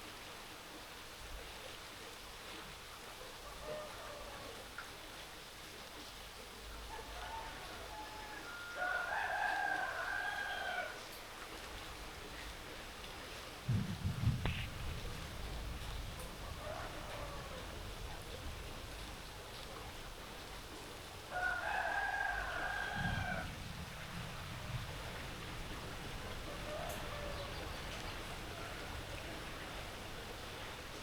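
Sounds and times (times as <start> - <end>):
rooster crowing: 6.9 - 11.0, 16.4 - 17.8, 21.3 - 23.5, 26.5 - 27.8
rain hissing: 13.4 - 21.5.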